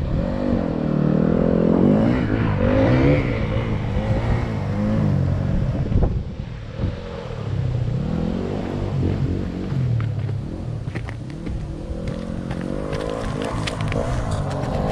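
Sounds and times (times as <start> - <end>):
dirt bike engine revving: 11.4 - 14.9.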